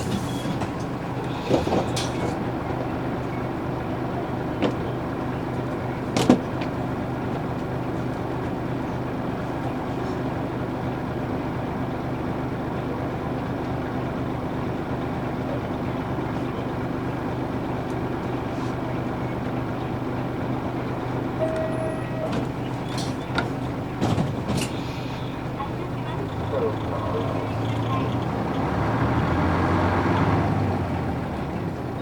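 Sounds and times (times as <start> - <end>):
bus diesel engine running: 0.0 - 32.0
short high tone: 21.4 - 22.4.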